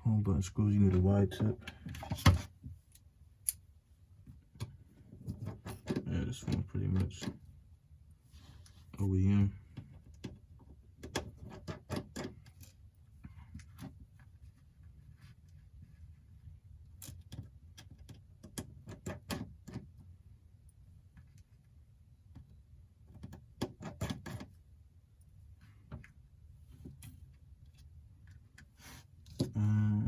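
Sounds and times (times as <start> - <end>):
faint low hum: 24.2 - 30.0.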